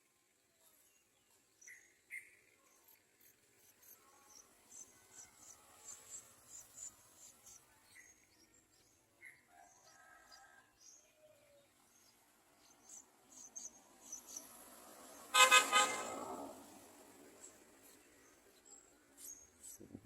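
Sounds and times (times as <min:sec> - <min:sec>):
loud harsh bird call: 0:15.3 - 0:16.4.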